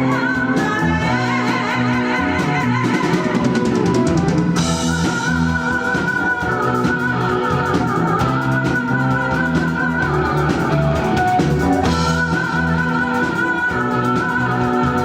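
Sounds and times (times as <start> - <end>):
live rock band playing: 0.0 - 15.0
wavering lead melody: 0.0 - 15.0.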